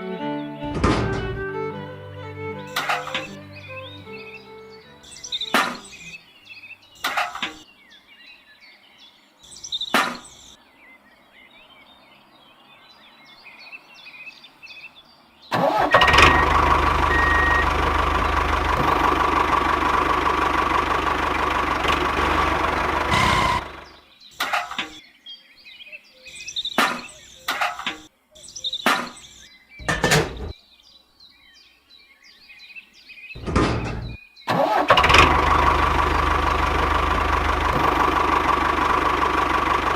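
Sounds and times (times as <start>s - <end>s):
sharp knocks: 0.6s - 1.4s, 33.4s - 34.2s
small engine running: 15.6s - 24.0s, 34.5s - 39.9s.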